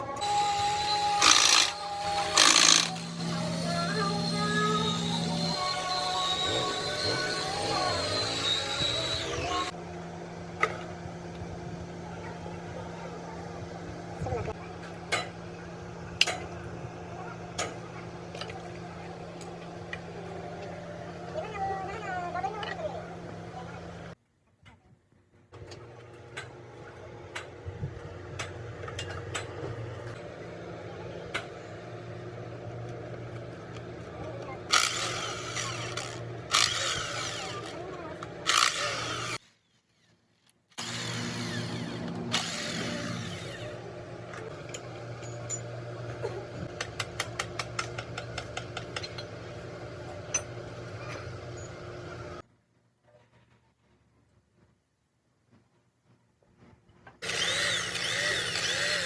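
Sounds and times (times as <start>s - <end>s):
machine motor humming: 0.2s - 9.8s, 31.8s - 39.4s, 40.8s - 46.6s, 57.2s - 59.0s.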